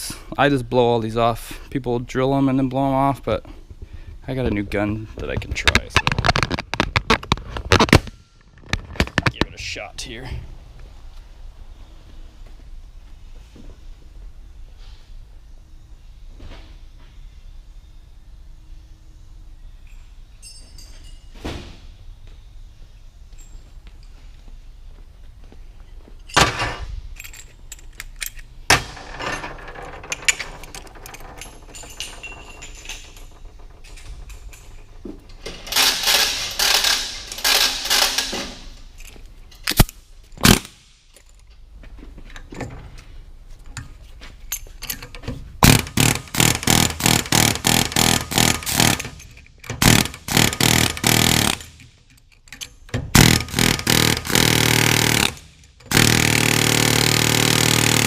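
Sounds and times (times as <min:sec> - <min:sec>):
sharp metal clanks: 0:26.3 - 0:38.6
cordless impact gun hammering: 0:45.6 - 0:49.2, 0:49.8 - 0:51.8, 0:53.2 - 0:58.0.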